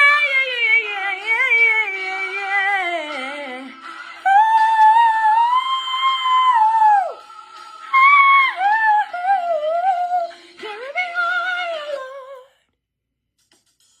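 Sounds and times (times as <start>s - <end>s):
woman singing wordless runs: 8.0s - 12.5s.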